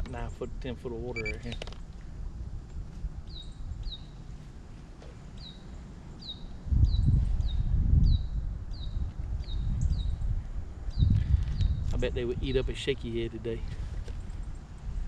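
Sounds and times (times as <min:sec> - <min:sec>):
bird chirping: 0:01.2 - 0:01.6, 0:05.3 - 0:10.2.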